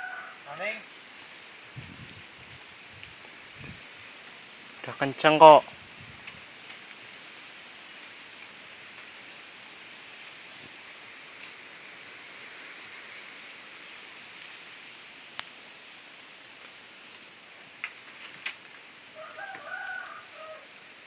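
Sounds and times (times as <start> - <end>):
rooster crowing: 0.0 - 0.7, 19.1 - 20.9
background hiss: 0.0 - 21.0.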